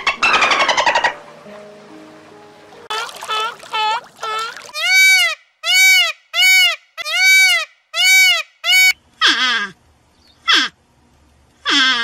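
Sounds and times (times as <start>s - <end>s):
harsh peacock calls: 0.0s - 1.3s, 2.9s - 9.8s, 10.4s - 10.8s, 11.6s - 12.0s
peacocks honking: 0.0s - 1.6s, 2.9s - 9.8s, 10.4s - 10.8s, 11.6s - 12.0s.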